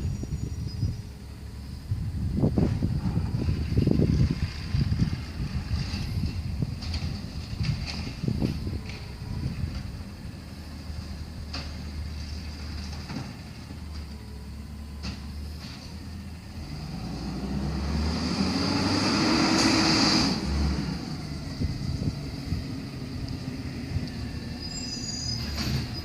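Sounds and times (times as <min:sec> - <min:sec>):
garbage truck engine revving: 0:16.4 - 0:26.0.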